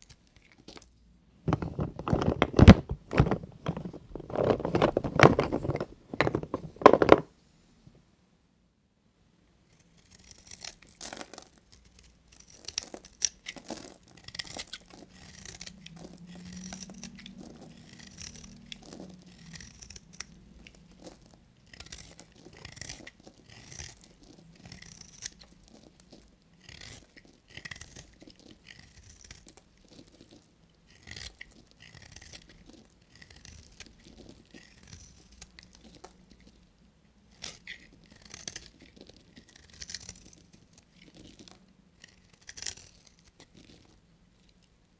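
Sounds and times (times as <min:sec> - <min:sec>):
knife cutting bar soap: 0:09.8 - 0:36.6, 0:37.3 - 0:43.9.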